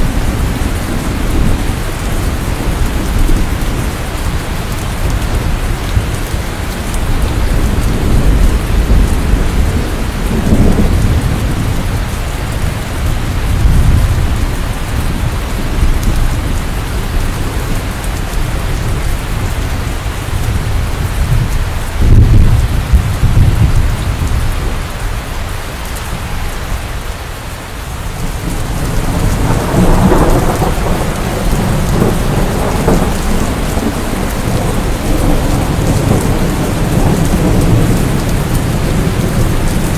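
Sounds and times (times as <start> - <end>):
rolling thunder: 0.0 - 25.0, 28.1 - 39.9
steady rain: 0.0 - 39.9.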